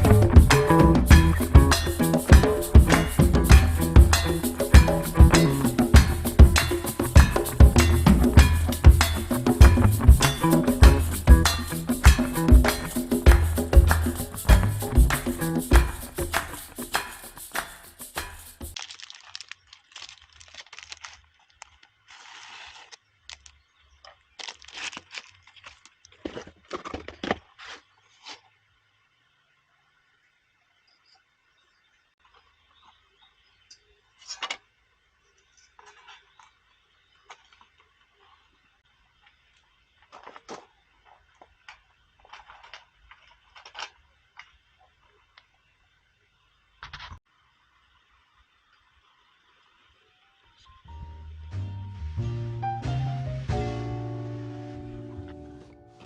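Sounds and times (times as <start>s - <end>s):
short tearing sound: 17.6s - 23.5s, 24.4s - 26.0s
crinkling and rustling handling: 18.7s - 28.6s, 35.5s - 38.6s, 39.2s - 45.5s.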